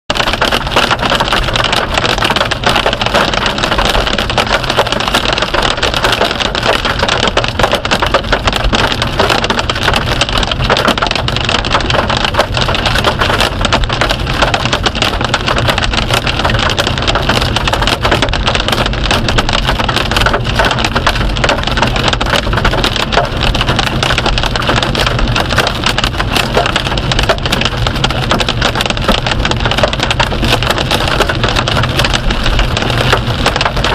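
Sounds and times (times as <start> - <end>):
hail pattering: 0.1 - 33.9.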